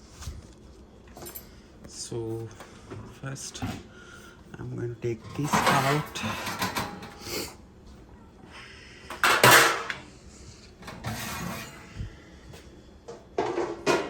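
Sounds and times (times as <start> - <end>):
metal rack scraping: 5.2 - 7.2, 9.1 - 10.0, 10.8 - 11.9
oven rack rattling and clanking: 5.2 - 7.2, 10.8 - 11.9.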